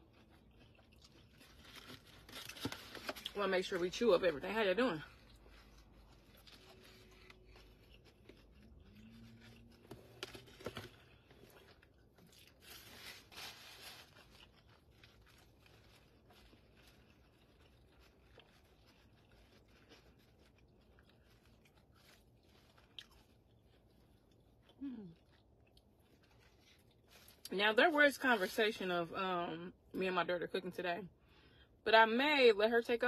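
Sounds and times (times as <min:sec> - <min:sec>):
burger being chewed: 0:00.0 - 0:03.4, 0:05.0 - 0:27.5.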